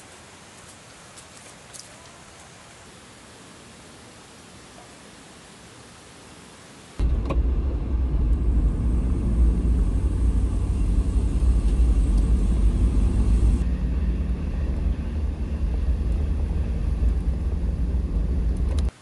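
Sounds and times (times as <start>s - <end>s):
loud low rumble: 7.0s - 18.9s.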